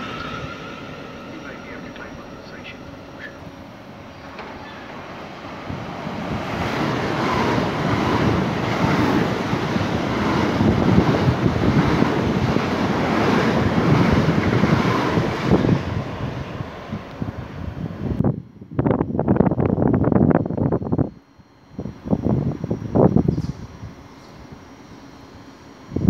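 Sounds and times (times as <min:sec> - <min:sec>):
electric train passing at speed: 0:00.0 - 0:26.0
wind buffeting microphone: 0:05.4 - 0:24.0.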